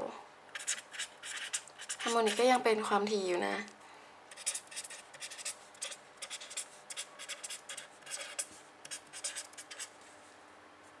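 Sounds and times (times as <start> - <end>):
pen scratching on paper: 0.5 - 2.5, 4.3 - 10.0.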